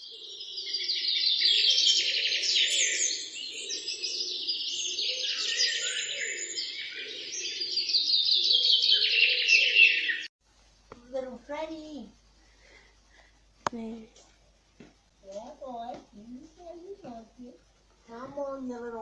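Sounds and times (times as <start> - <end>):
bird chirping and trilling: 0.0 - 10.3.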